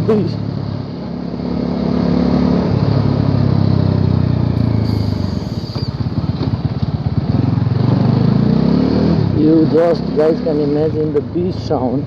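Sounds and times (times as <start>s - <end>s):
motorcycle engine exhaust: 1.6s - 9.8s.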